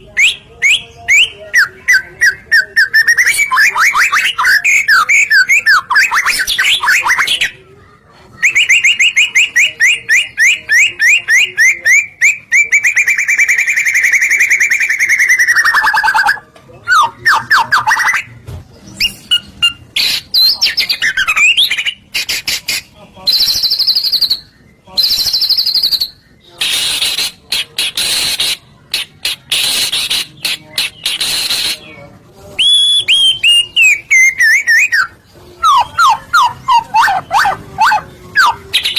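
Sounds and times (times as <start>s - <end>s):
bird singing varied song: 0.0s - 7.6s, 8.4s - 38.9s.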